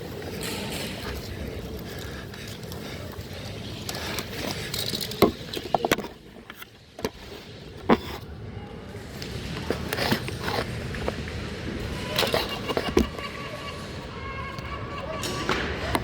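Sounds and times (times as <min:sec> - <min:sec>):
wind: 0:00.0 - 0:16.0.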